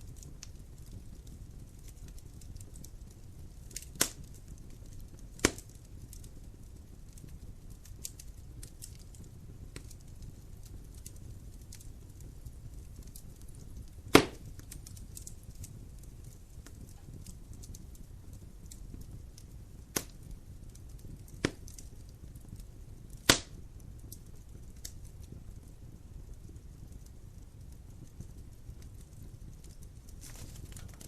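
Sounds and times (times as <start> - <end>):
wood fire hissing and crackling: 0.0 - 31.0
logs popping: 14.1 - 15.3, 23.2 - 23.6, 30.2 - 31.0.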